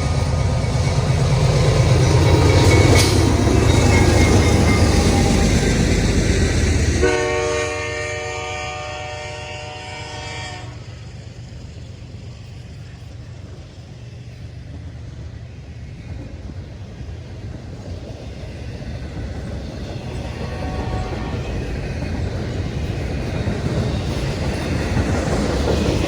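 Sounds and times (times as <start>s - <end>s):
train rumbling by: 0.0s - 26.0s
train horn chord: 7.0s - 10.8s, 20.4s - 21.5s.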